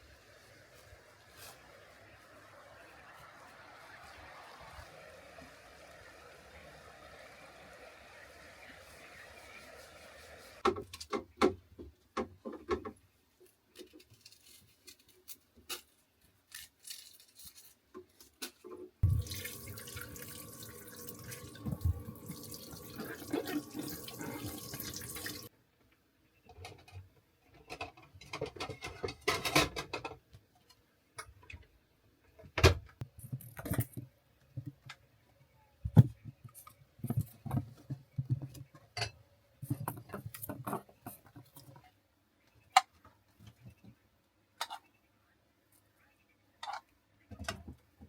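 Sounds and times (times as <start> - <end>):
water running from tap: 19.0 - 25.5.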